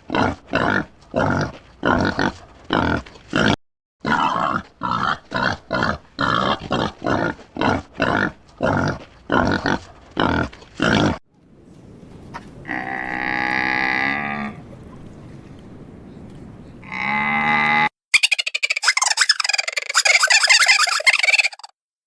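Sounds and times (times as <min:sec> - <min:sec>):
cow mooing: 0:12.6 - 0:14.6, 0:16.8 - 0:17.9.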